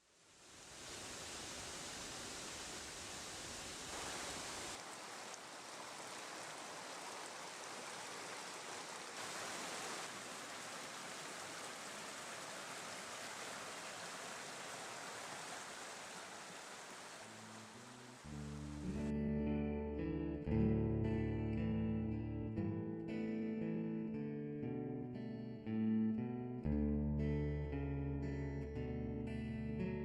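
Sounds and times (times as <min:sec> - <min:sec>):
steady rushing hiss: 0:00.0 - 0:18.8.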